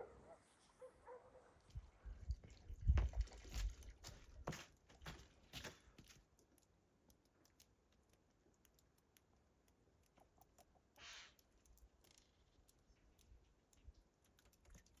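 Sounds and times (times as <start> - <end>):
faint clicks: 6.3 - 15.0
short soft hiss: 11.0 - 11.4.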